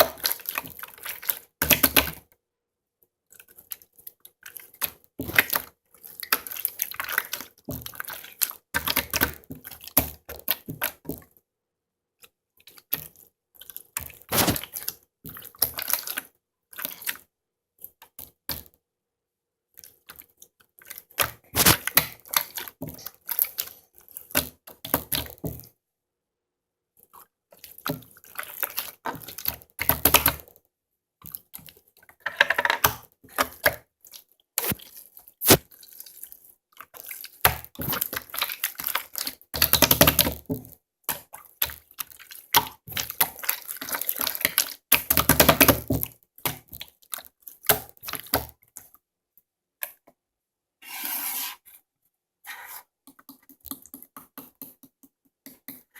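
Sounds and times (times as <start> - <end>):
slime squelching by hand: 0.0 - 2.1, 3.3 - 11.2, 12.6 - 17.3, 19.8 - 25.4, 27.0 - 30.5, 33.3 - 49.0.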